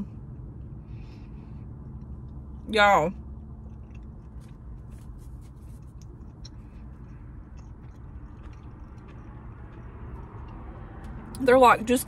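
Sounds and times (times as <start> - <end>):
low hum inside car: 0.0 - 12.0
chewing mouth clicks: 3.2 - 11.2.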